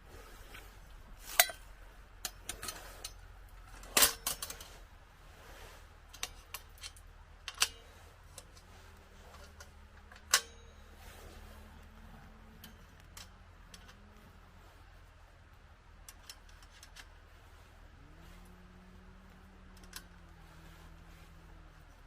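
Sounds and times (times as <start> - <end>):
metal parts clinking and clacking: 1.2 - 4.8, 6.1 - 8.7, 9.3 - 11.0, 12.6 - 14.0, 16.0 - 17.2, 19.7 - 20.2.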